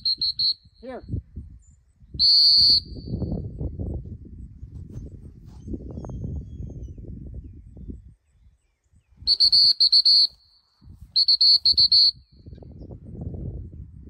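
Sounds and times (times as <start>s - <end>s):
dog whistle short toots: 11.2s - 12.2s.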